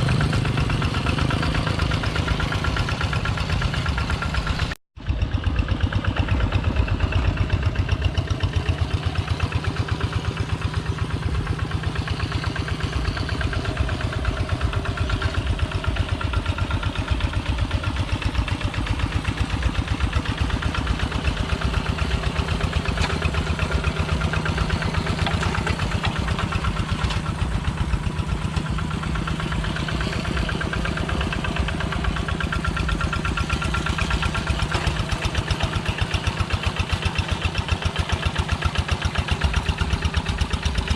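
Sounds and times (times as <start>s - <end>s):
walking tractor engine chugging: 0.0s - 40.9s.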